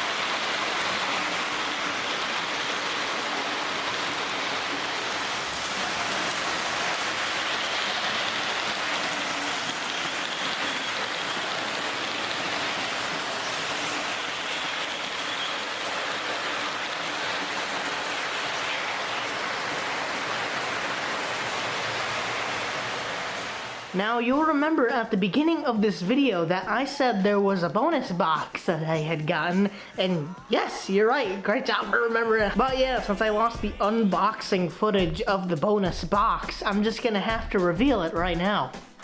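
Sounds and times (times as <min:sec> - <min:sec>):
model train whirring on rails: 0:00.0 - 0:23.9.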